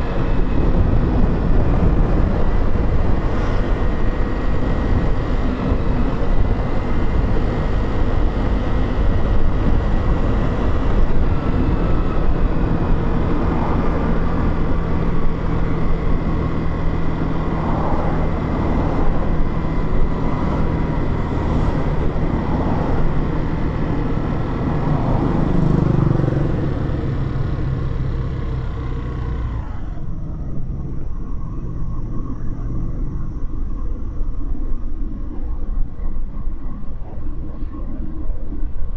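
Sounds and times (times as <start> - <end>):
motorcycle engine running: 0.0 - 38.9
wind and road noise: 0.0 - 38.9.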